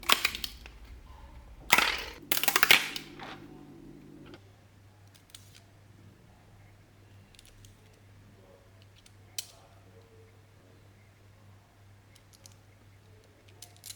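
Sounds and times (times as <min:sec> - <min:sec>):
plastic parts clicking and clattering: 0:00.0 - 0:04.4.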